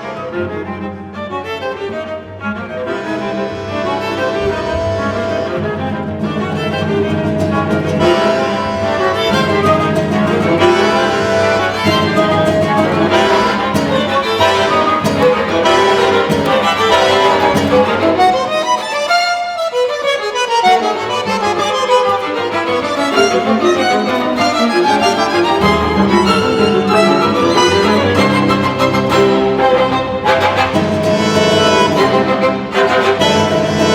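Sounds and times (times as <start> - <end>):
string quartet with bandoneon and guitar: 0.0 - 33.9.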